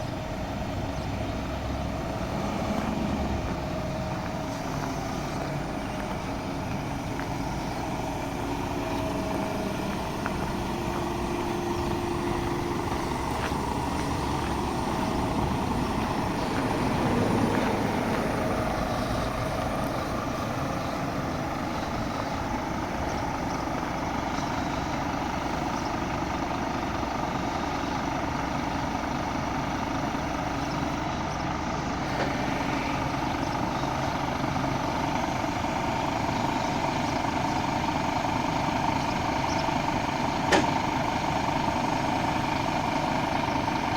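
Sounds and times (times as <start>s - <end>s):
truck diesel engine running: 0.0s - 43.9s.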